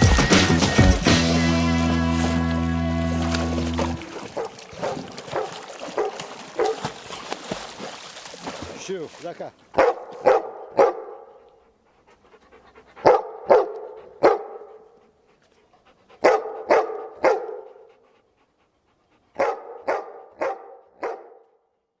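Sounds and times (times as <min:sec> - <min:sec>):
dog barking with echo: 0:04.0 - 0:06.8, 0:09.8 - 0:11.4, 0:13.0 - 0:14.8, 0:16.2 - 0:17.8, 0:19.4 - 0:21.6.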